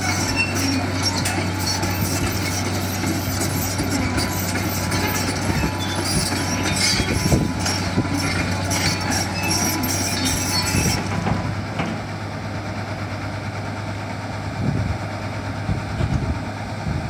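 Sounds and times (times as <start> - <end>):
machine squeaking and clanking: 0.0 - 12.0
excavator diesel engine running: 0.0 - 17.0.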